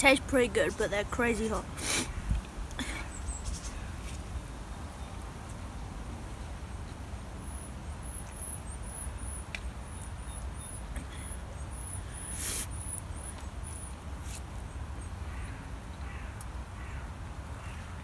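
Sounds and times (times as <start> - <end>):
small bird calling: 7.5 - 13.9.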